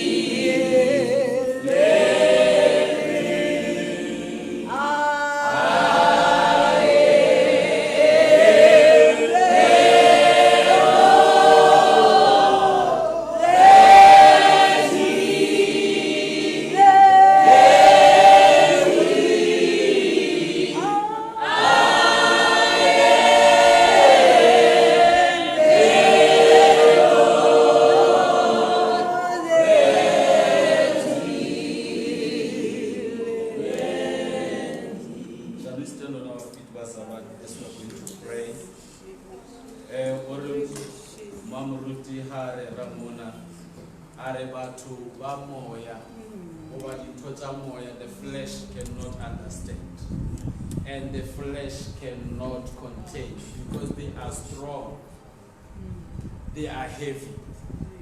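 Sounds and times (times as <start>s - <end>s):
group singing gospel in harmony: 0.0s - 44.7s.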